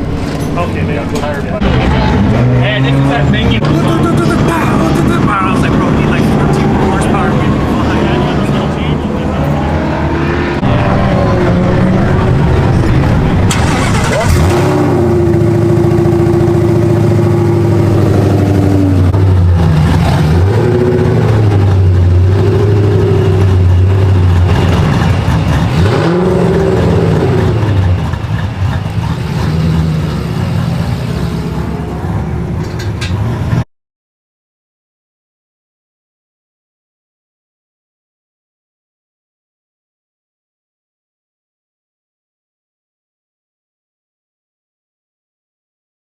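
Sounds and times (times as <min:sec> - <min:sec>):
car engine revving: 0:00.0 - 0:33.6.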